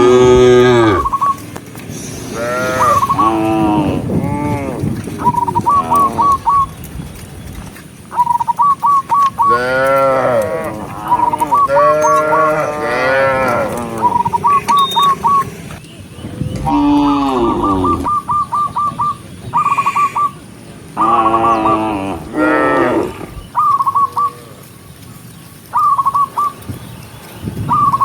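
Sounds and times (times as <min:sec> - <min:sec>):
cattle mooing: 0:00.0 - 0:01.2, 0:02.3 - 0:06.4, 0:09.5 - 0:15.7, 0:16.4 - 0:18.1, 0:21.0 - 0:23.4.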